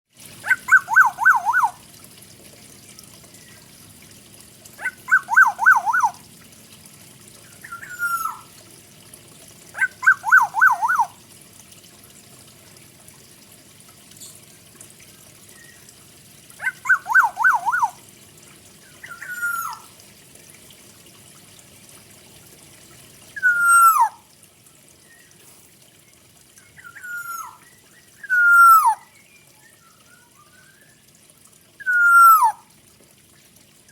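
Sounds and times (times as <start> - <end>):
oriole singing whistled phrases: 0.5 - 1.8, 4.8 - 6.2, 7.6 - 8.5, 9.8 - 11.1, 16.6 - 18.0, 19.0 - 19.8, 23.4 - 24.2, 26.7 - 31.0, 31.8 - 32.6.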